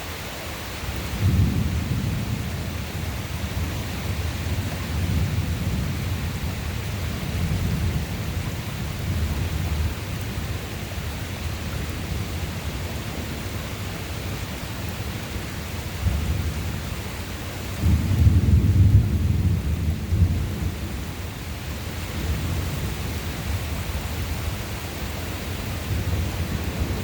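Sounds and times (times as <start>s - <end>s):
steady rain: 0.0s - 27.0s
thunder rumbling: 17.8s - 21.2s.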